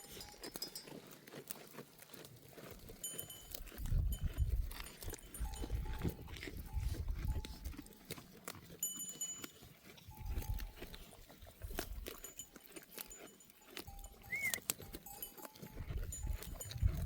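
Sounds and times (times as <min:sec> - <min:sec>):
sheep bells clinking: 0:00.0 - 0:17.0.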